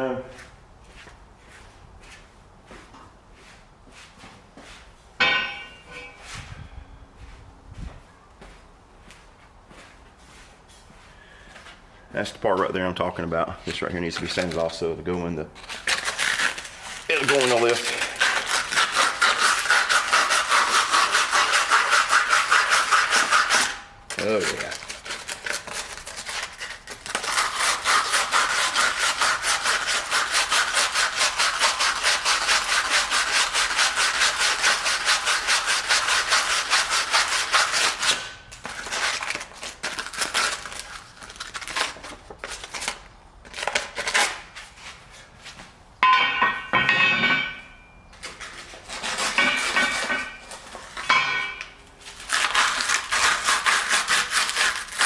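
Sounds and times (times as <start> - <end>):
sandpaper scraping on steel: 15.6 - 42.8, 48.2 - 55.0.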